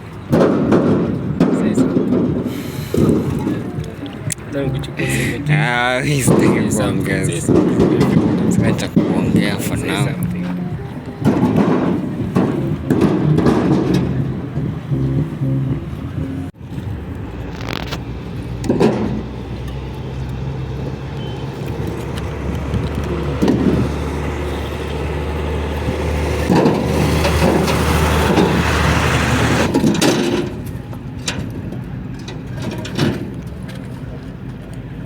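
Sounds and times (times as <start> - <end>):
heavy vehicle engine running: 0.0 - 35.0
knocks and bumps: 6.1 - 16.5, 22.0 - 24.8.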